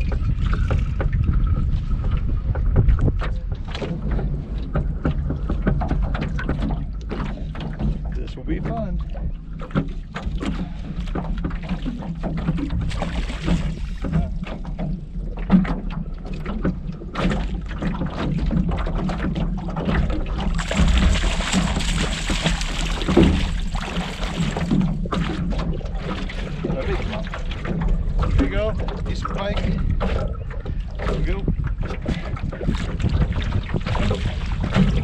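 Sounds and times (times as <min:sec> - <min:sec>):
low rumble: 0:00.0 - 0:09.6, 0:19.5 - 0:35.0
knocks and clicks in a rowboat: 0:00.0 - 0:35.0.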